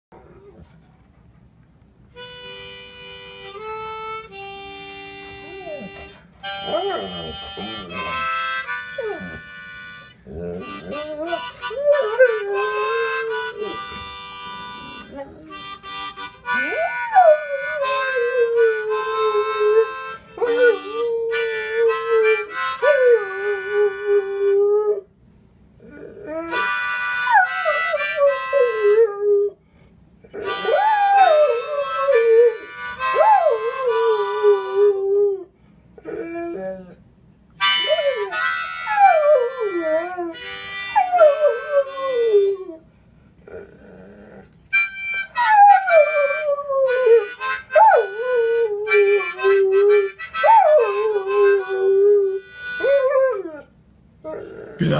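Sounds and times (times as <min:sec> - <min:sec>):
harmonica chords: 0:02.1 - 0:24.8, 0:26.3 - 0:29.2, 0:30.3 - 0:35.1, 0:37.6 - 0:42.8, 0:44.7 - 0:53.6
dog howling: 0:05.4 - 0:09.5, 0:10.3 - 0:14.2, 0:16.5 - 0:25.0, 0:30.4 - 0:37.0, 0:37.8 - 0:42.8, 0:45.2 - 0:53.7.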